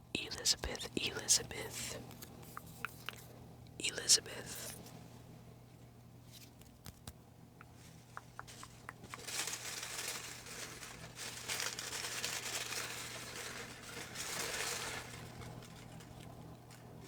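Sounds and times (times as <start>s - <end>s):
paper rustling and crinkling: 7.8s - 17.0s.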